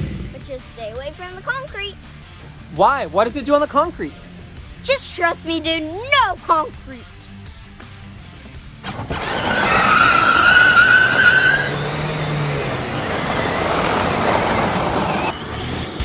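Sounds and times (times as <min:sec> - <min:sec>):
tyres skidding: 0:00.0 - 0:16.0
tyre squeal: 0:08.8 - 0:15.8.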